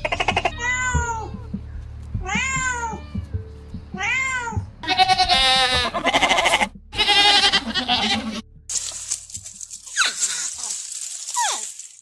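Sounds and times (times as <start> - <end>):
goats bleating: 4.8 - 8.4.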